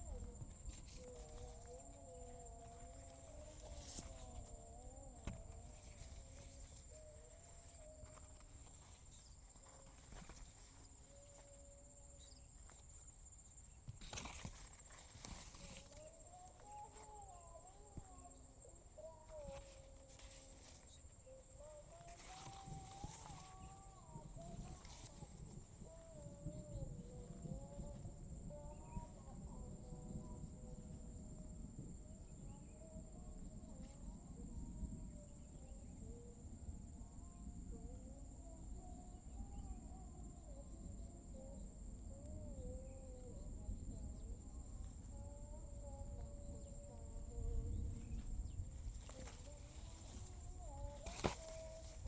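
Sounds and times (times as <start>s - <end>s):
insects droning: 0.0s - 52.0s
footsteps: 49.0s - 52.0s.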